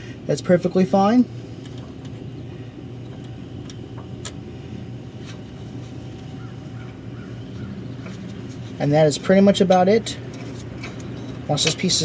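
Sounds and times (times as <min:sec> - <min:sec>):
workshop low hum: 0:00.0 - 0:12.0.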